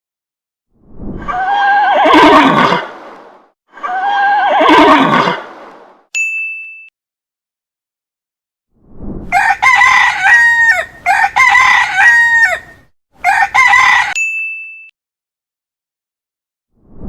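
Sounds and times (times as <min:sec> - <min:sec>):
rooster crowing: 0:09.3 - 0:14.2.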